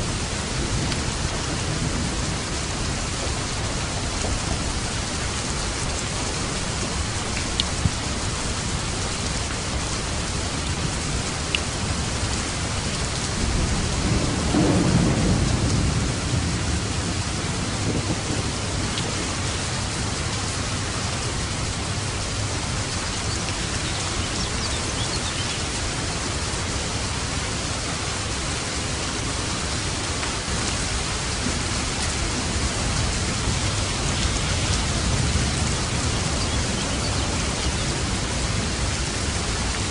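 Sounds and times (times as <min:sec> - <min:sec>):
heavy rain: 0:00.0 - 0:39.9
thunder rolling: 0:13.4 - 0:20.2.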